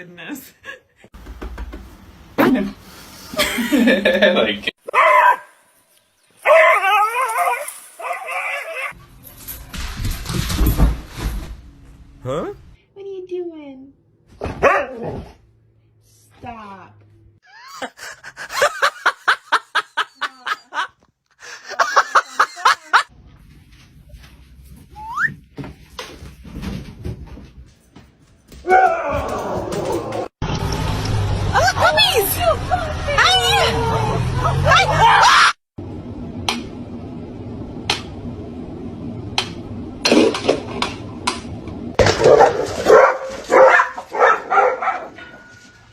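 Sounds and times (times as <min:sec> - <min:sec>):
person laughing hard: 0:03.4 - 0:04.2, 0:17.5 - 0:23.1
dog barking: 0:04.9 - 0:05.6, 0:06.5 - 0:07.1, 0:14.4 - 0:15.3, 0:42.1 - 0:45.5
steady low hum: 0:35.8 - 0:42.0.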